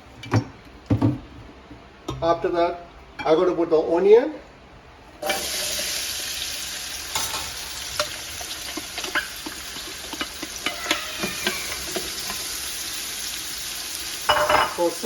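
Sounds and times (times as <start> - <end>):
onion sizzling in oil: 5.2 - 15.0
utensil stirring in a pan: 5.3 - 14.5.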